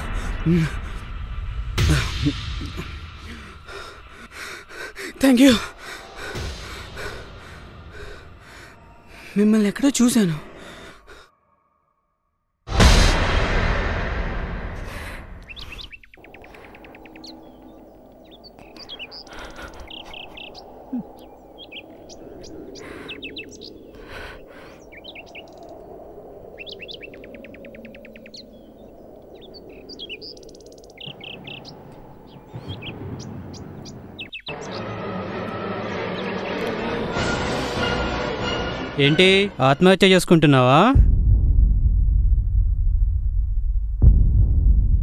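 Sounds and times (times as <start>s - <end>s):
birds chirping and trilling: 2.0s - 11.4s, 14.9s - 38.6s.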